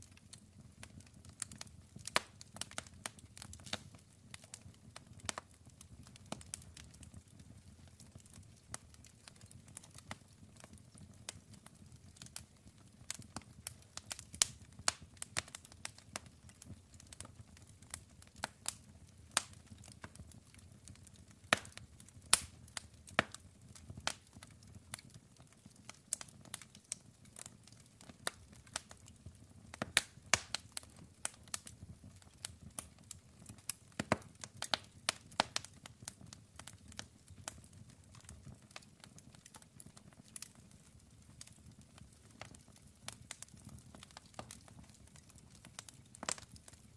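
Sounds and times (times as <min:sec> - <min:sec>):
wood fire crackling: 0:00.0 - 0:46.9
sharp pops and snaps: 0:21.5 - 0:22.5, 0:29.8 - 0:31.7, 0:32.7 - 0:38.4.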